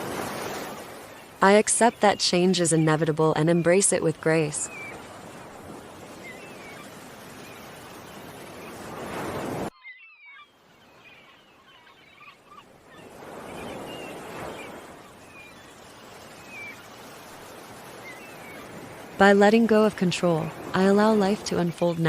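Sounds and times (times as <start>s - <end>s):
ocean waves washing in: 0.0s - 9.7s, 12.4s - 22.0s
small birds chirping: 1.8s - 8.8s, 9.8s - 18.8s.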